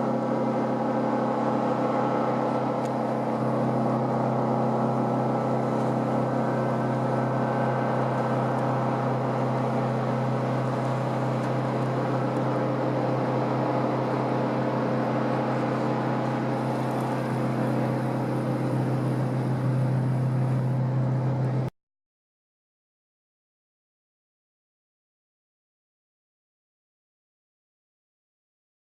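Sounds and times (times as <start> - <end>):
boat engine droning: 0.0 - 21.7.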